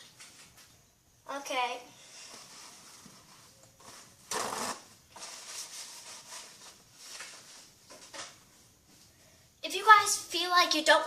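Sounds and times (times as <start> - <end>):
rustling and scraping handling: 2.1 - 9.2
fluttering scratches: 2.3 - 7.7.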